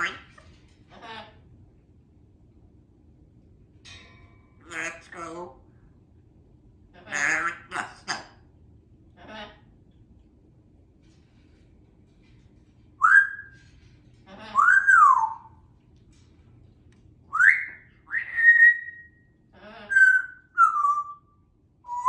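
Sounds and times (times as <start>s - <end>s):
parrot whistling: 13.0s - 13.6s, 14.6s - 15.6s, 17.3s - 19.3s, 19.9s - 22.0s.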